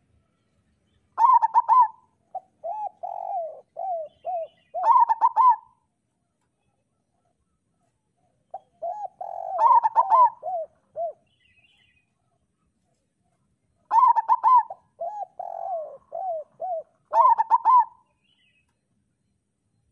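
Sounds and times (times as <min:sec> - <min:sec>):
dove cooing: 0:01.2 - 0:05.9, 0:08.5 - 0:11.4, 0:13.8 - 0:18.1.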